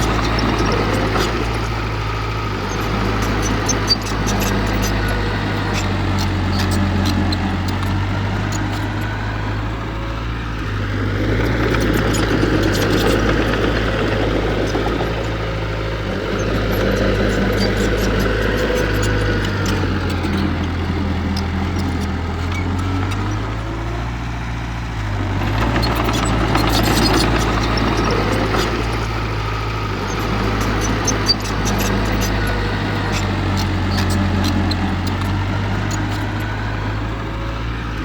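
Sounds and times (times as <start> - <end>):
diesel engine running: 0.0 - 38.0
light clicks and clanks: 11.4 - 15.4, 25.4 - 29.2, 30.0 - 36.4.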